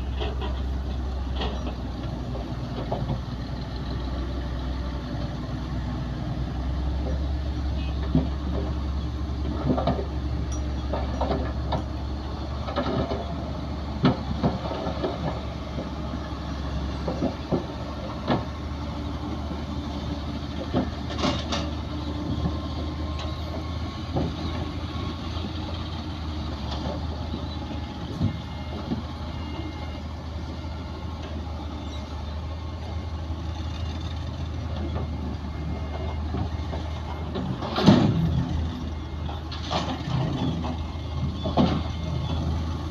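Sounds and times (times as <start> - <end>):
diesel machinery droning: 0.0 - 42.9
knocks and clanks: 9.4 - 12.0, 23.2 - 24.7, 34.8 - 42.1.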